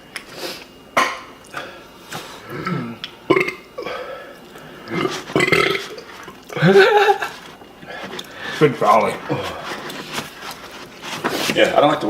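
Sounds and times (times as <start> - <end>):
man burping: 2.4 - 4.0, 4.8 - 8.3.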